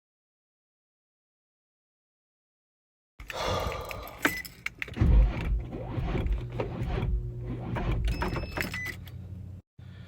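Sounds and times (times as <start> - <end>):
car keys jangling: 3.8 - 5.0.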